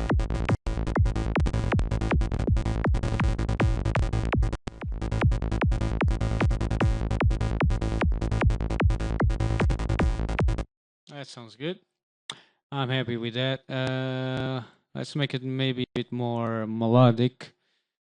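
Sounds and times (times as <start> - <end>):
steady low synth bass: 0.0 - 10.7.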